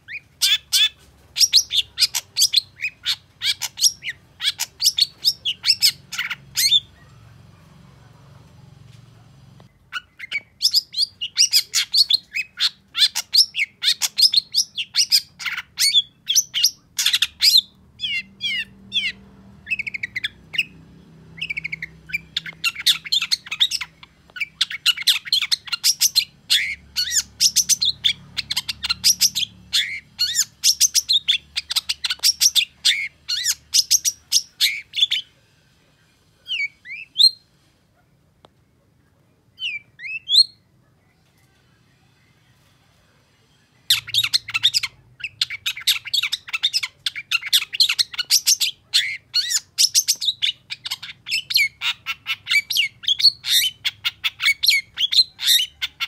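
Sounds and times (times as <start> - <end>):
shrike chattering song: 0.1 - 7.4.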